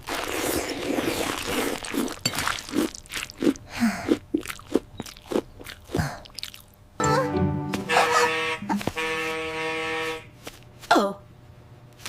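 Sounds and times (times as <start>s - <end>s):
crunchy chewing: 0.0s - 6.8s.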